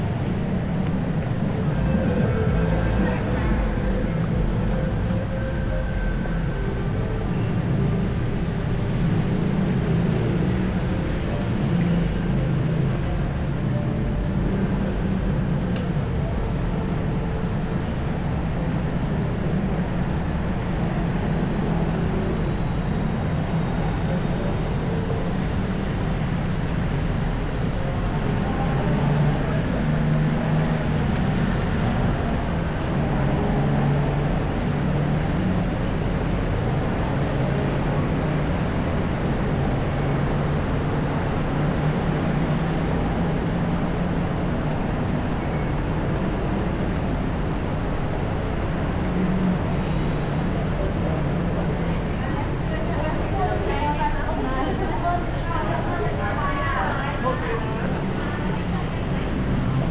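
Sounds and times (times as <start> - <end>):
city street traffic: 0.0 - 59.9.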